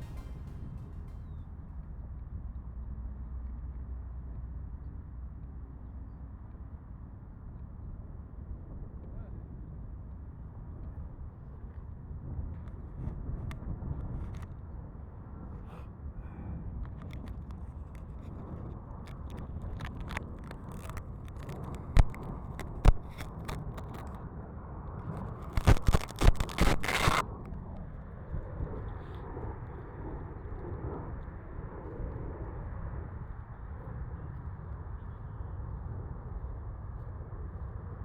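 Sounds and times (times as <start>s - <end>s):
scattered clicks: 0.0s - 1.3s, 19.1s - 24.2s, 25.2s - 27.2s
wind rumbling on microphone: 8.5s - 38.0s
knocking and scraping: 20.7s - 24.0s, 25.5s - 27.2s.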